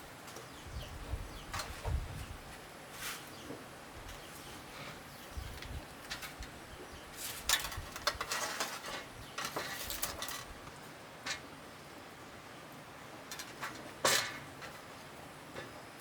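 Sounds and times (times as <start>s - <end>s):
bamboo rustling and scraping: 1.4s - 11.5s, 13.2s - 15.8s.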